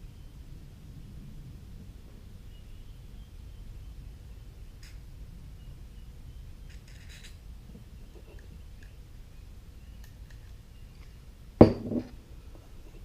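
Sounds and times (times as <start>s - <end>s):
faint clicks of small parts: 4.8s - 5.0s, 6.7s - 9.0s, 10.0s - 11.2s
small knock: 11.6s - 12.2s.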